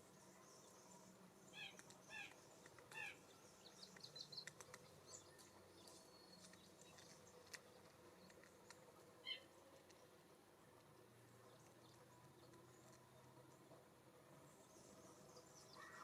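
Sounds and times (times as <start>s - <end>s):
faint wild bird calls: 0.0s - 8.4s, 9.2s - 9.7s, 14.4s - 16.0s.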